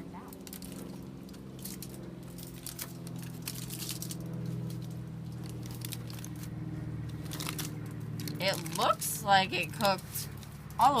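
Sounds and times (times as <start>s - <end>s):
steady low hum: 0.0s - 11.0s
aluminium foil crinkling: 0.3s - 6.5s, 7.1s - 9.1s.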